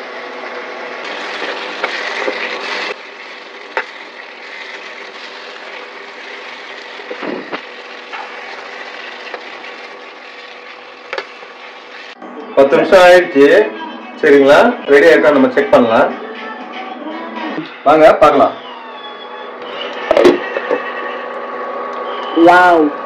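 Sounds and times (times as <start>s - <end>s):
chicken sizzling in pan: 0.1s - 12.2s.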